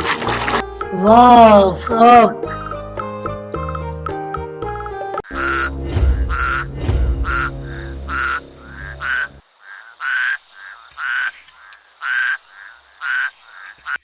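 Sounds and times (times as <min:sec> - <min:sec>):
frog croaking: 0:07.3 - 0:14.0.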